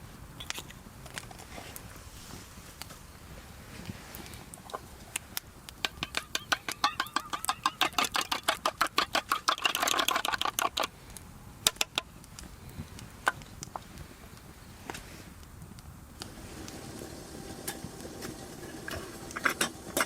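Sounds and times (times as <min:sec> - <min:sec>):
cooking utensil tapping rapidly: 0:05.8 - 0:10.9.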